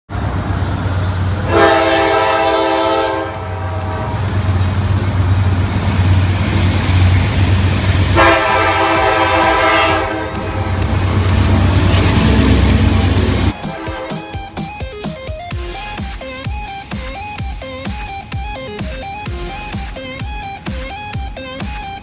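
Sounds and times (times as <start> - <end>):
diesel engine rumble: 0.1 - 22.0
locomotive air horn blasts: 1.4 - 5.4, 7.4 - 21.9.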